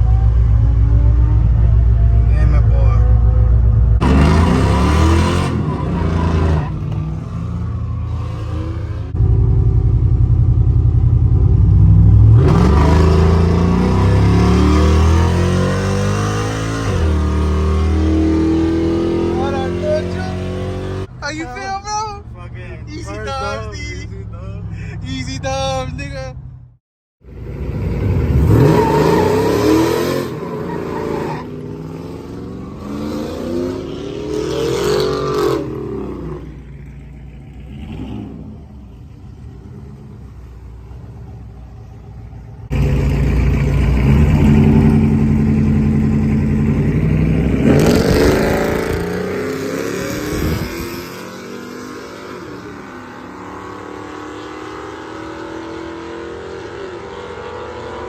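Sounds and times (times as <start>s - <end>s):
race car engines revving: 0.0s - 26.6s, 27.3s - 58.0s
loud steady engine: 7.9s - 21.2s, 40.4s - 49.2s.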